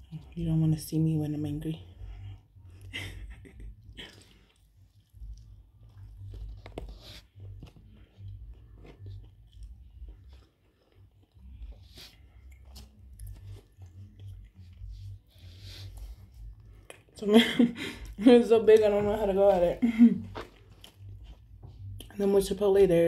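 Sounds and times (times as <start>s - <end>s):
close chewing with wet clicks: 3.7s - 15.5s, 16.2s - 17.2s, 20.3s - 22.2s.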